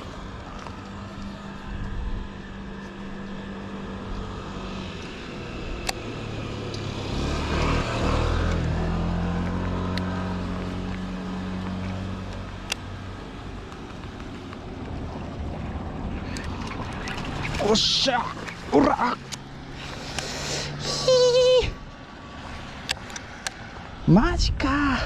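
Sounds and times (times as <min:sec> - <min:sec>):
vehicle passing by: 0:00.0 - 0:24.2
sharp clicks: 0:12.3 - 0:12.9, 0:22.8 - 0:23.6.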